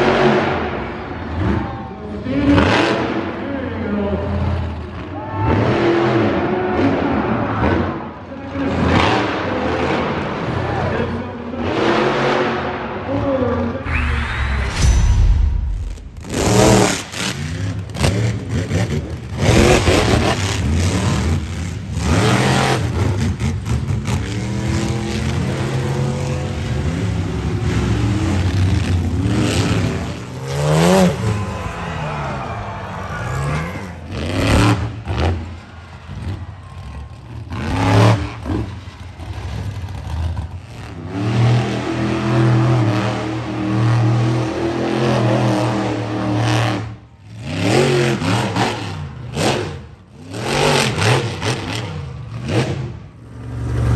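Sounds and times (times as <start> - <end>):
truck engines revving: 0.0 - 53.9
loud bangs: 13.8 - 20.6.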